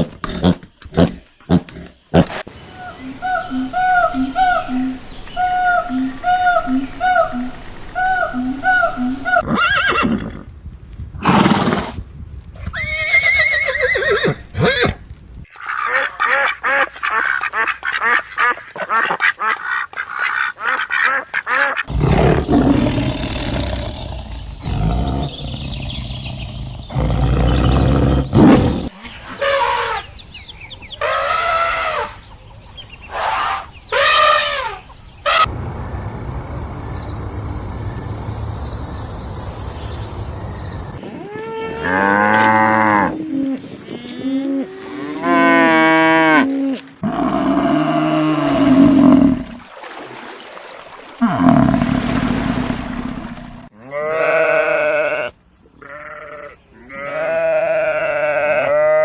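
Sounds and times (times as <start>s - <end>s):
rapid repeated animal calls: 3.0s - 9.4s
waterfowl quacking and honking: 15.6s - 21.9s.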